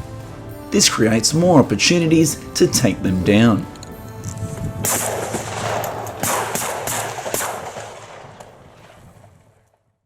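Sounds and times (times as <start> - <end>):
shotgun shots echoing: 4.8 - 9.6.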